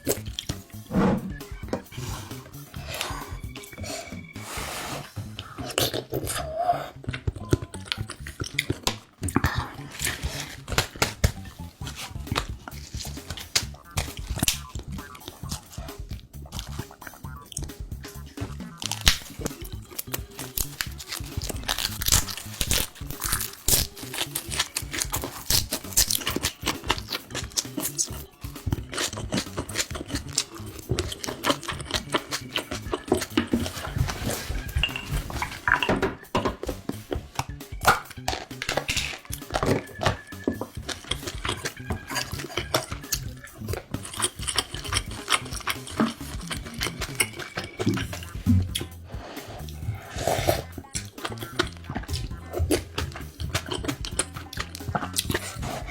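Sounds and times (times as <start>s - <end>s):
close chewing and mouth smacks: 0.0s - 0.9s, 5.2s - 35.8s, 36.6s - 55.9s
background music with bass: 0.0s - 55.9s
utensils clinking against dish: 28.8s - 36.8s, 37.4s - 48.9s.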